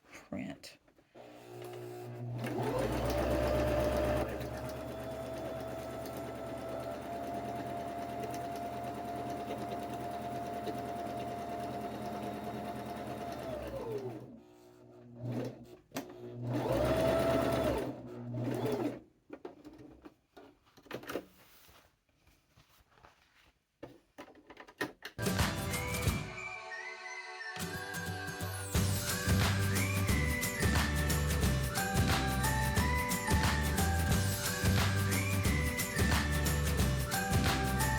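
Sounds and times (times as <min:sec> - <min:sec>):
sewing machine stitching: 0:01.2 - 0:14.4, 0:15.0 - 0:20.0.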